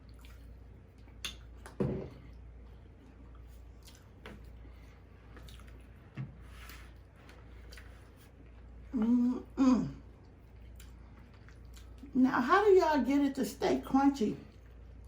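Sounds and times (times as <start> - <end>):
wet mouth clicks chewing: 3.4 - 4.6, 5.4 - 5.9, 10.2 - 12.1.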